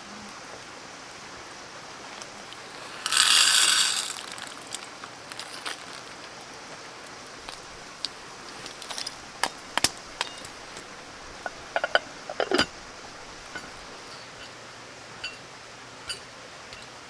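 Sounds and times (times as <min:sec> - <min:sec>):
steady hiss: 0:00.0 - 0:17.0
metal cooking gear clinking: 0:02.5 - 0:06.1, 0:08.5 - 0:14.5.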